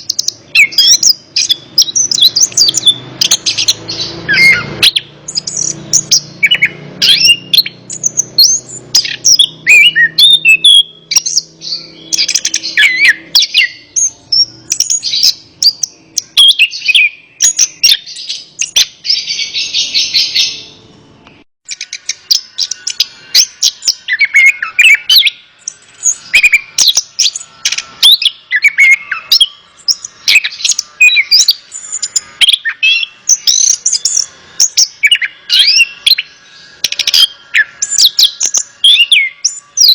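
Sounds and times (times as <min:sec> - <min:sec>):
thrush singing whistles and chirps: 0:00.0 - 0:39.9.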